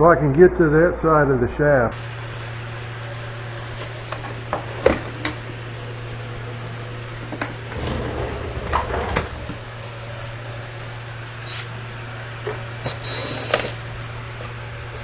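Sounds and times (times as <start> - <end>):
steady low hum: 0.0 - 15.0
box scraping: 7.7 - 9.8.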